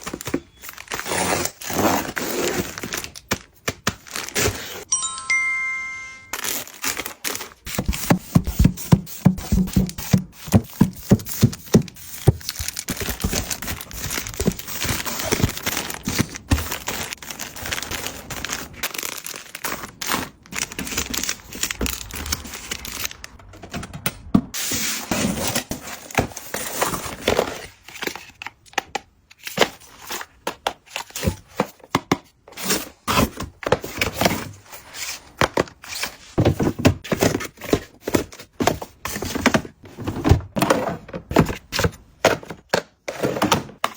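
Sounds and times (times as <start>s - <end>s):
packaging crinkling and tearing: 0.0s - 4.9s, 6.3s - 7.9s, 11.4s - 23.4s.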